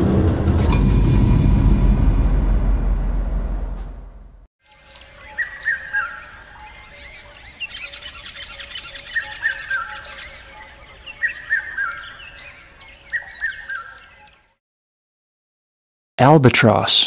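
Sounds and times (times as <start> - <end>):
birds chirping: 4.8 - 14.4.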